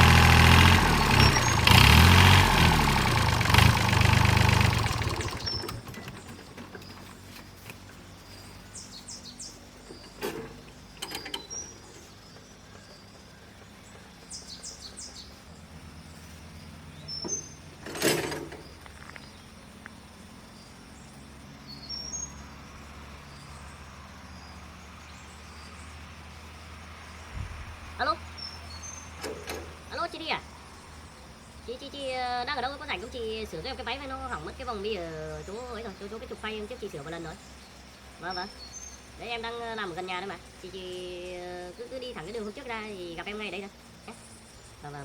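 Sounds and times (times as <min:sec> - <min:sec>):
short clatter: 0:17.2 - 0:19.3.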